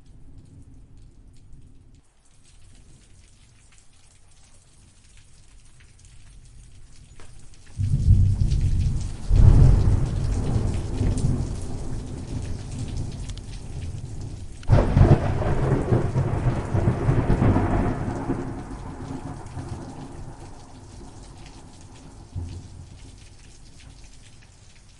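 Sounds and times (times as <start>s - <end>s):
rain falling: 0.0s - 24.9s
thunder rumbling: 7.8s - 23.2s.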